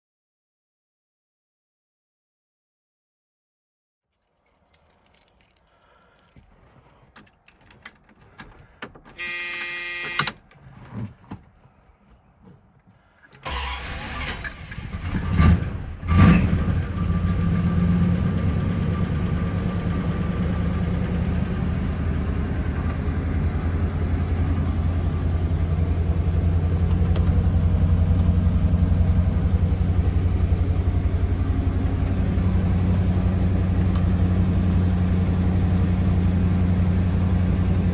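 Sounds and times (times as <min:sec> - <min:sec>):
warning buzzer: 0:09.2 - 0:10.4
car engine starting and revving: 0:13.4 - 0:37.9.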